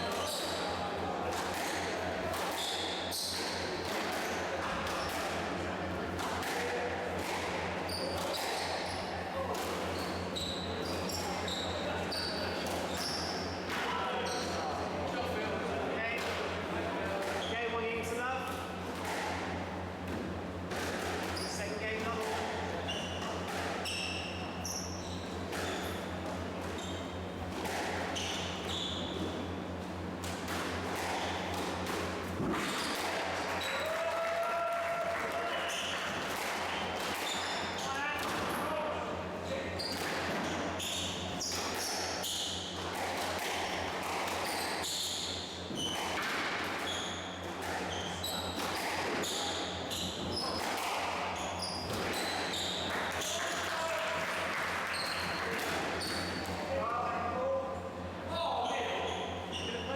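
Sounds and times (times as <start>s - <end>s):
shoe squeaks on court floor: 0.0s - 0.8s, 2.5s - 5.2s, 7.9s - 9.1s, 9.8s - 13.6s, 14.2s - 14.7s, 22.8s - 26.1s, 26.7s - 27.2s, 28.0s - 29.4s, 32.6s - 33.9s, 37.1s - 38.0s, 39.4s - 42.8s, 44.3s - 46.2s, 46.8s - 53.4s, 54.9s - 56.6s, 58.6s - 59.9s
squash ball hitting rackets and walls: 0.0s - 10.1s, 18.4s - 24.2s, 27.4s - 33.8s, 35.7s - 38.6s, 39.8s - 53.3s.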